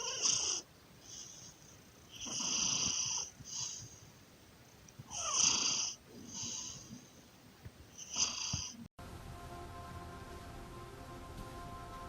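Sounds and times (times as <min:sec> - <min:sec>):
pet snoring: 0:00.0 - 0:04.0, 0:05.1 - 0:07.2, 0:08.0 - 0:08.9.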